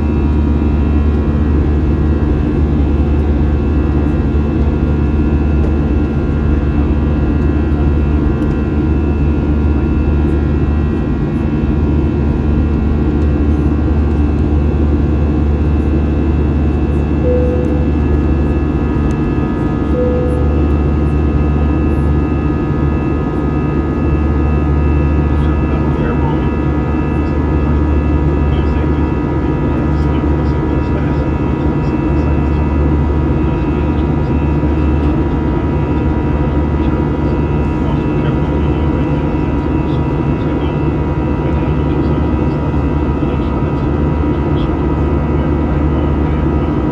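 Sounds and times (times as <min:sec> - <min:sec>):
jet engines rumbling in cabin: 0:00.0 - 0:46.9
short faint tones: 0:17.2 - 0:21.8.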